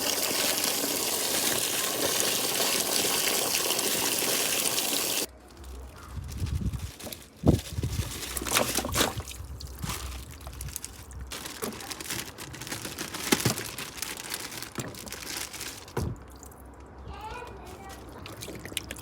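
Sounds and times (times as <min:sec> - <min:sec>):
household items crinkling and knocking: 0:05.4 - 0:16.4.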